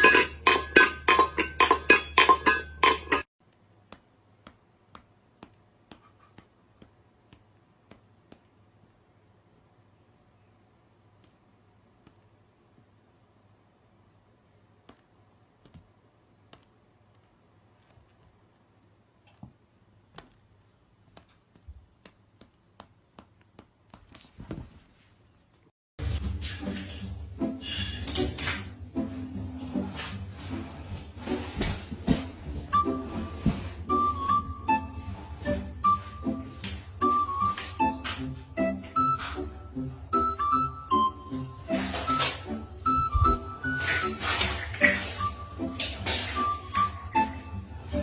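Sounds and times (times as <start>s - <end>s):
faint clicks and taps: 3.4s - 9.0s, 11.1s - 12.9s, 14.8s - 24.6s
rustling: 14.8s - 25.7s.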